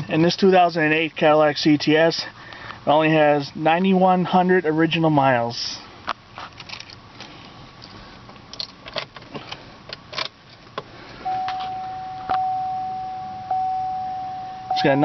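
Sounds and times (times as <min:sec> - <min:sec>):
light clicks and rattles: 0:06.4 - 0:10.6
car warning chime: 0:11.2 - 0:15.0.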